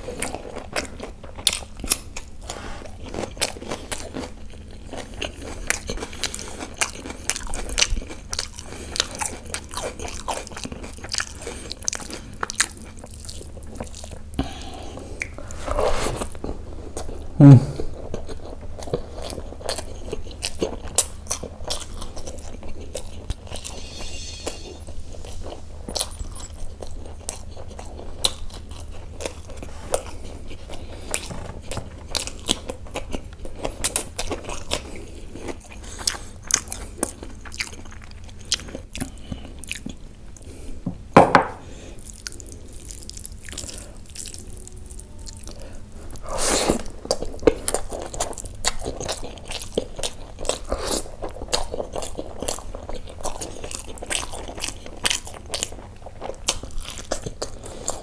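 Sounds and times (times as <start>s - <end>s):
wet chewing and crunching: 0.0s - 17.3s, 17.9s - 23.8s, 25.2s - 40.6s, 42.0s - 58.0s
loud mouth noises: 17.3s - 18.0s.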